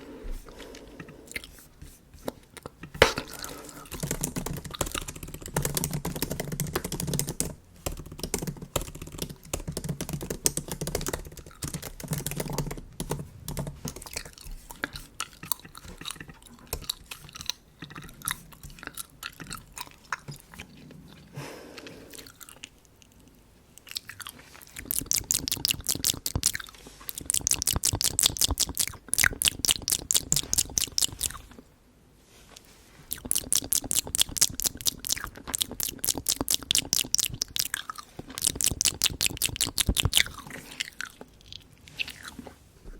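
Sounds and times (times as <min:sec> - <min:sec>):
bubble gum chewing: 0:10.6 - 0:31.6, 0:33.0 - 0:42.6.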